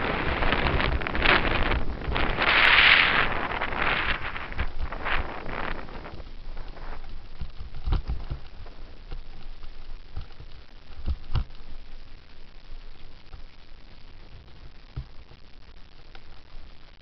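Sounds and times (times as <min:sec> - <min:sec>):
road rumble: 0:00.0 - 0:12.0
wind noise: 0:00.0 - 0:15.4
bicycle knocking and rattling: 0:03.5 - 0:11.8, 0:14.2 - 0:15.3.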